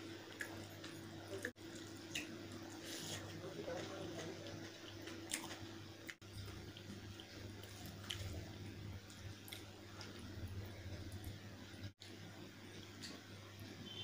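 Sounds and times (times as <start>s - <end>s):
chewing mouth clicks and squishes: 4.8s - 10.4s.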